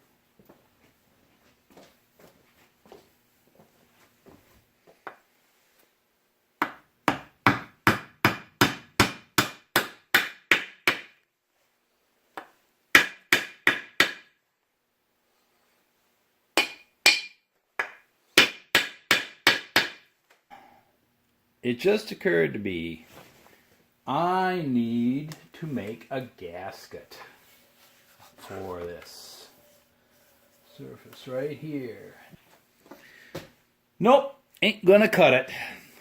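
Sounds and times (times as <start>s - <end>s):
hammer tapping on wooden block: 6.6s - 11.2s, 13.0s - 14.3s, 16.6s - 20.0s.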